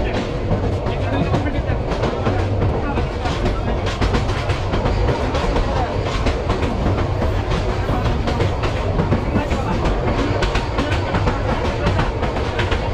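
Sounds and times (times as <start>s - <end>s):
train wheels rumbling on track: 0.0s - 12.9s.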